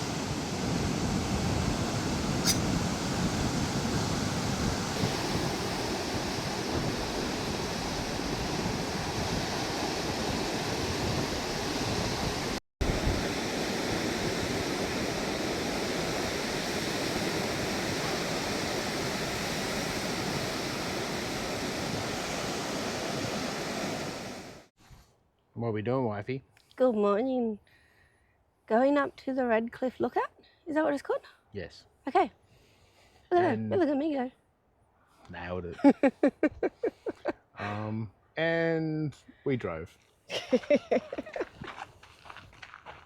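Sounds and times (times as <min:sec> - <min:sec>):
ocean surf washing onto shore: 0:00.0 - 0:24.7
wind: 0:00.0 - 0:43.0.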